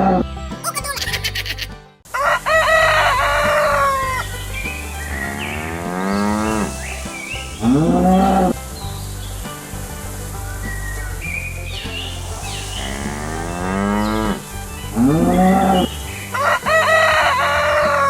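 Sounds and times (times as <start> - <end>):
background music: 0.0 - 18.0
cow mooing: 5.2 - 6.8, 12.6 - 18.0.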